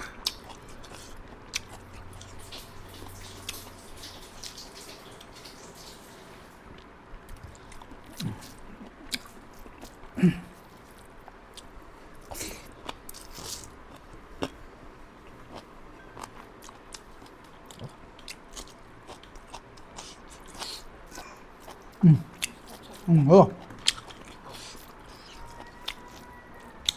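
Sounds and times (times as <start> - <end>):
biting and chewing: 15.2 - 26.9.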